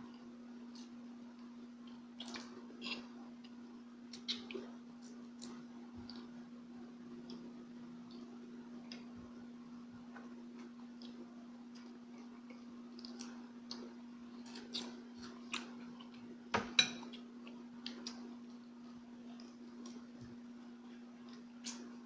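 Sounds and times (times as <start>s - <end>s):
steady low hum: 0.0s - 22.0s
person chewing: 0.6s - 6.4s, 10.0s - 16.3s.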